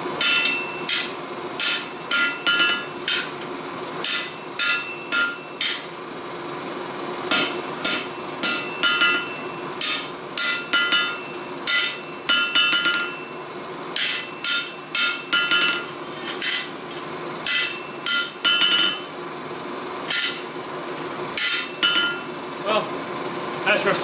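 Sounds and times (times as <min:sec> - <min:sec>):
hammer striking steel on anvil: 0:00.2 - 0:03.4, 0:04.0 - 0:05.9, 0:07.3 - 0:13.3, 0:14.0 - 0:16.8, 0:17.4 - 0:19.1, 0:20.1 - 0:20.5, 0:21.4 - 0:22.3.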